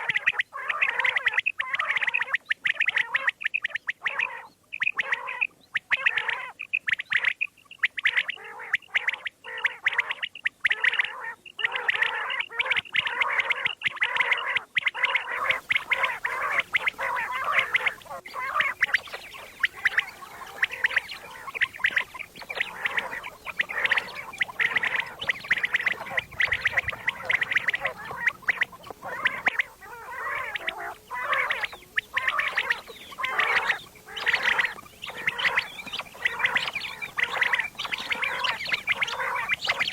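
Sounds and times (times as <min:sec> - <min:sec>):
quail calling: 0:00.0 - 0:39.9
faint hiss: 0:15.3 - 0:39.9.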